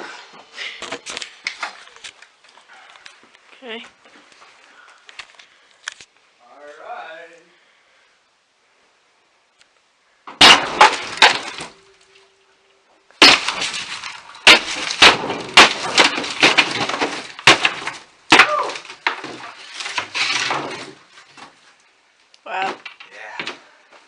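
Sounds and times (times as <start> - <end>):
wall chunks crumbling and crashing: 10.3 - 12.0, 13.2 - 21.8, 22.5 - 23.8.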